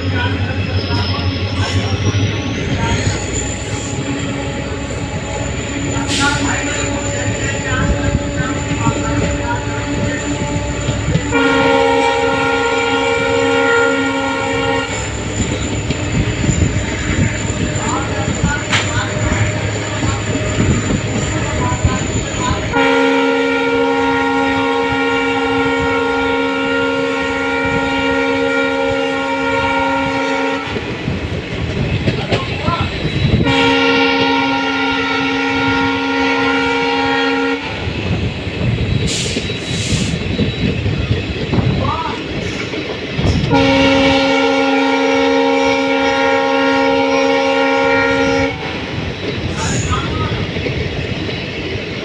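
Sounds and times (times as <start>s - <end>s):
train rumbling on track: 0.0s - 52.0s
locomotive air horn blasts: 4.3s - 15.2s, 22.6s - 30.8s, 33.4s - 37.8s, 43.5s - 48.8s.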